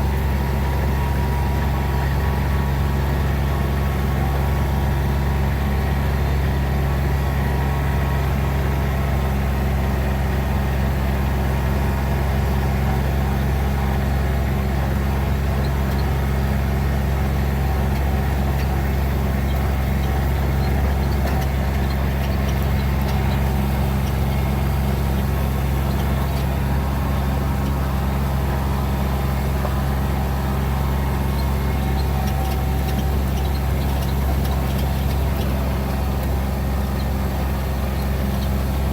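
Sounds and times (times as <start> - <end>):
road noise: 0.0 - 38.9
vehicle engine hum: 0.0 - 38.9.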